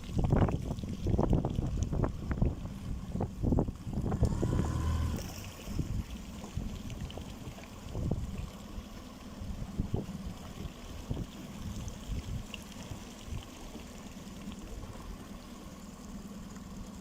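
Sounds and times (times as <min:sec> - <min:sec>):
wind gusting on microphone: 0:00.0 - 0:08.5
small boat motor running: 0:00.0 - 0:17.0
water swishing: 0:00.0 - 0:17.0.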